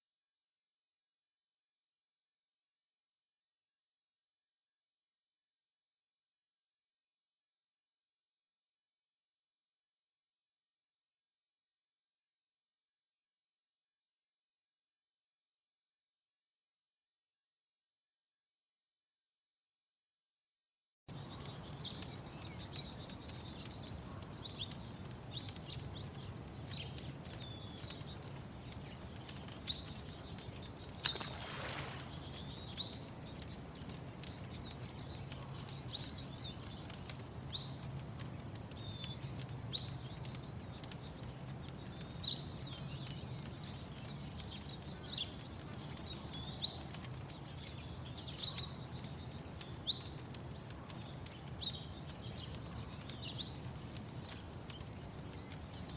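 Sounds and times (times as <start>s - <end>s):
bird chirping: 21.1s - 37.9s, 38.7s - 55.9s
wood fire crackling: 21.1s - 55.9s.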